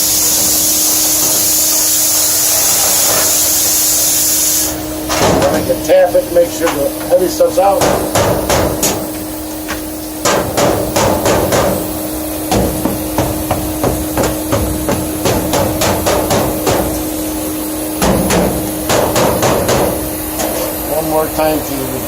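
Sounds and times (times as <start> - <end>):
steady hum: 0.0 - 22.0
knocking on sheet-metal ductwork: 5.1 - 5.8, 6.7 - 9.2, 10.2 - 17.1, 18.0 - 20.6.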